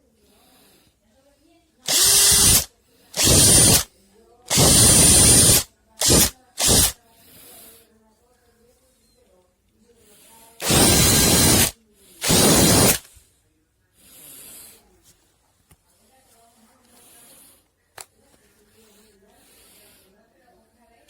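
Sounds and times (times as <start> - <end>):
cordless hammer drill running: 1.9 - 3.9, 4.5 - 7.0, 10.6 - 13.0
faint handling noises: 14.8 - 21.0.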